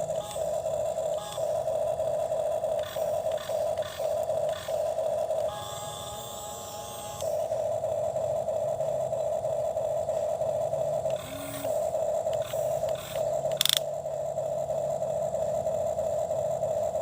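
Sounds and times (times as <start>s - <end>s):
toy electric motor whining: 0.0s - 7.9s, 10.8s - 13.9s
sharp click: 12.3s - 13.9s.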